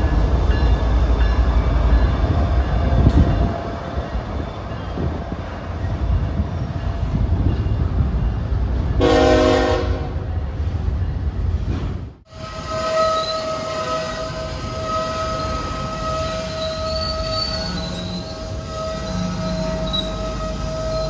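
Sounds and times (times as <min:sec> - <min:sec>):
train rumbling past: 0:00.0 - 0:21.0
locomotive air horn blast: 0:09.0 - 0:10.2, 0:12.3 - 0:21.0
high-pitched wheel squeal: 0:12.4 - 0:21.0.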